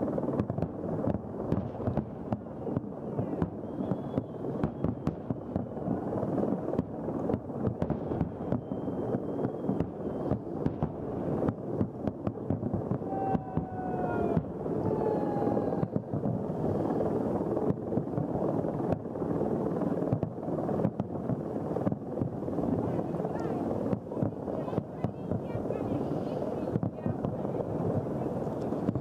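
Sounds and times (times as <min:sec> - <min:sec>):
fireworks bangs: 0:00.0 - 0:19.2, 0:19.8 - 0:29.0
faint whistle-like tone: 0:02.6 - 0:05.1, 0:08.4 - 0:10.5.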